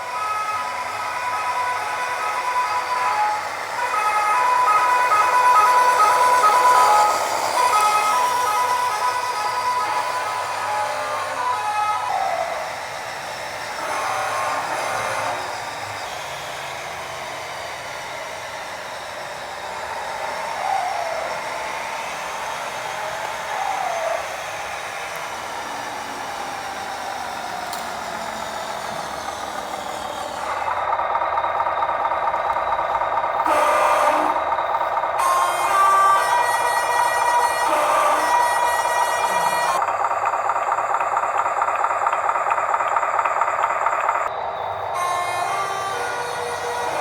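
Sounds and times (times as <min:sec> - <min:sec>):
electric motor and gears whining: 0:00.0 - 0:47.0
steady tones: 0:00.0 - 0:47.0.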